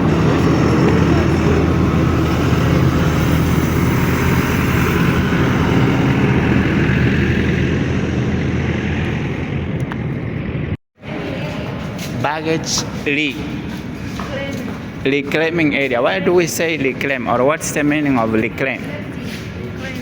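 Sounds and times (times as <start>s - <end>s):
jet engines rumbling and hissing: 0.0s - 15.5s.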